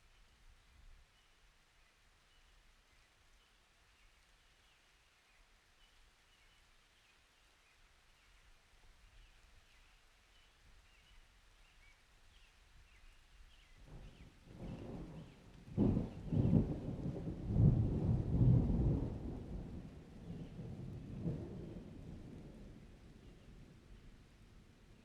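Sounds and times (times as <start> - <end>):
faint outdoor ambience hiss: 0.0 - 25.0.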